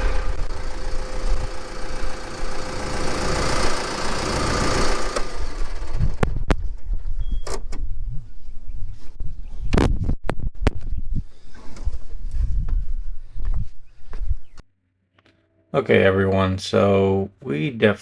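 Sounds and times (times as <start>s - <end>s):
engine running: 0.0s - 7.0s.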